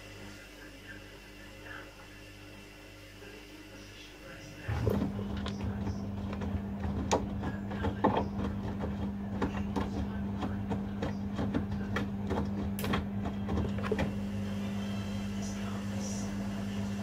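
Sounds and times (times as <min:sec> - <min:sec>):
washing machine hum: 0:00.0 - 0:17.0
drum knocks and clicks: 0:04.8 - 0:14.1.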